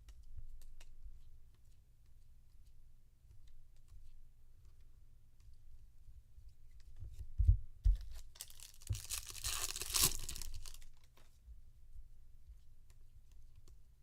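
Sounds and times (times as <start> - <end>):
foil pack tearing and crinkling: 8.4 - 10.8.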